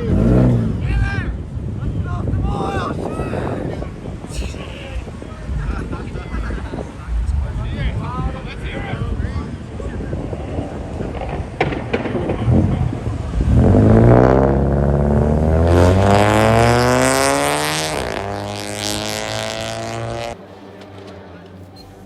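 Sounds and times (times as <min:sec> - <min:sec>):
car engine revving: 0:00.0 - 0:01.0, 0:10.9 - 0:21.7.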